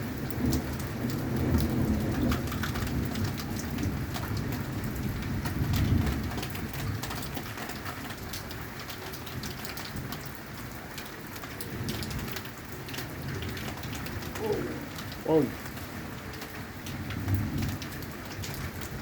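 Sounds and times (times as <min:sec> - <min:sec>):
low rumble of thunder: 0:00.0 - 0:07.4, 0:11.7 - 0:19.0
heavy rain: 0:00.0 - 0:19.0
raindrops ticking on surfaces: 0:00.0 - 0:19.0.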